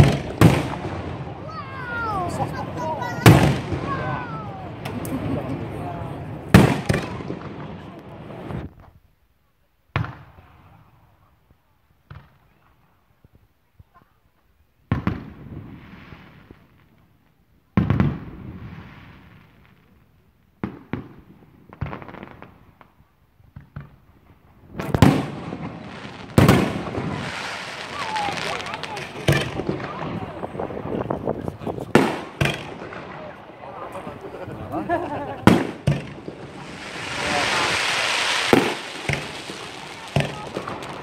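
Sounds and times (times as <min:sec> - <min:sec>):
small firework cracks: 0:00.0 - 0:05.2, 0:20.6 - 0:31.1, 0:31.8 - 0:34.3, 0:35.4 - 0:41.0
firework shells bursting: 0:31.9 - 0:33.4, 0:35.4 - 0:41.0.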